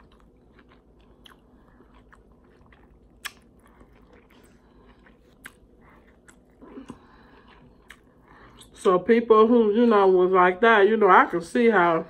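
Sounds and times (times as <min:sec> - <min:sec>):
chewing and biting food: 0:00.0 - 0:08.2.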